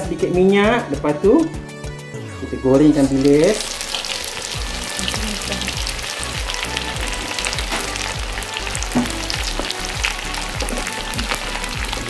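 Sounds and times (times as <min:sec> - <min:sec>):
fish deep-frying in oil: 0:02.9 - 0:12.0.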